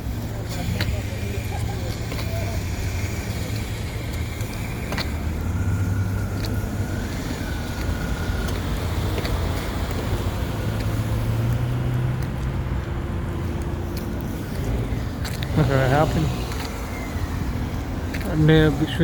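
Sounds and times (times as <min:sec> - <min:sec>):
road noise: 0:00.0 - 0:19.0
vehicle engine running: 0:00.0 - 0:19.0.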